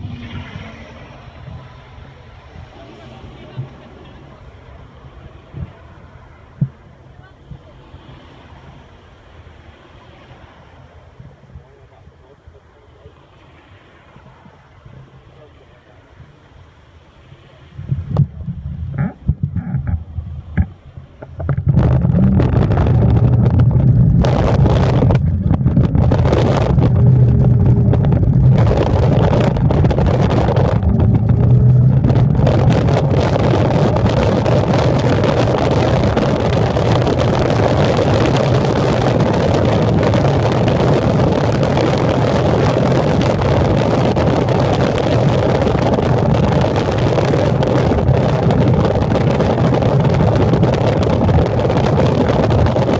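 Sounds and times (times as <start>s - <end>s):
train rushing noise: 0.0s - 6.8s
train low hum: 0.0s - 18.6s.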